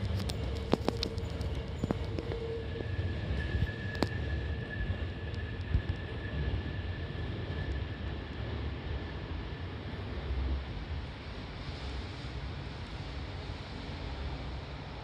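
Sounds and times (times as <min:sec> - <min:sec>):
train motor whine: 0:00.0 - 0:07.9
electric train rumbling: 0:00.0 - 0:15.0.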